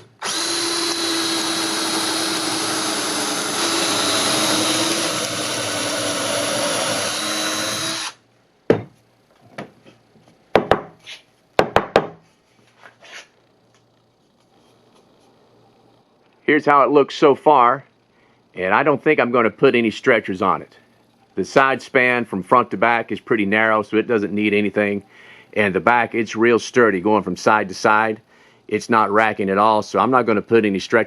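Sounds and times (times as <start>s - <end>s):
power drill running: 0.0s - 8.2s.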